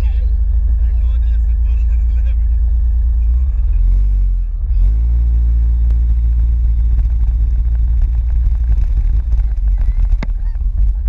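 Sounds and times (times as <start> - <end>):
motorcycle engine revving: 0.0 - 11.0
wind rumble on microphone: 3.2 - 11.0.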